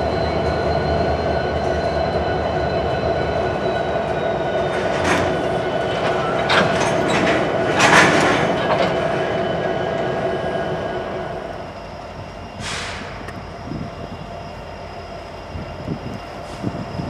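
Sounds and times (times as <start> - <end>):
distant train rumble: 0.0 - 17.0
freight train rolling past: 0.0 - 17.0
faint wheel squeal: 11.6 - 17.0
brief rush of noise: 12.6 - 13.2.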